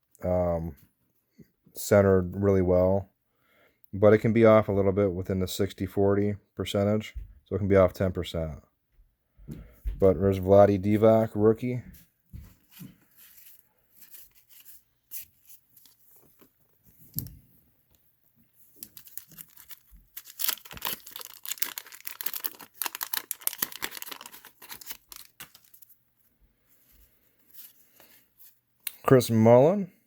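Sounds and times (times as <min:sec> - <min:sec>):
wrapper crinkling and tearing: 0:18.6 - 0:26.0.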